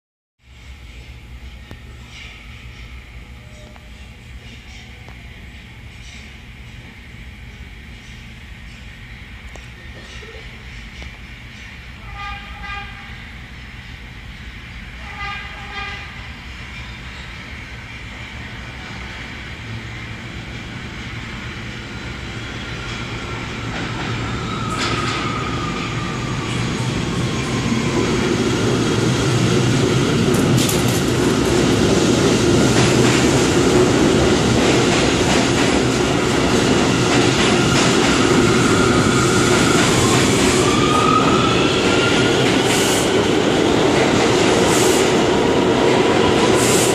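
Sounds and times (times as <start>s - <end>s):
train rumble and wheel noise: 0.4s - 46.9s
subway train horn blast: 11.9s - 13.5s, 15.0s - 16.5s.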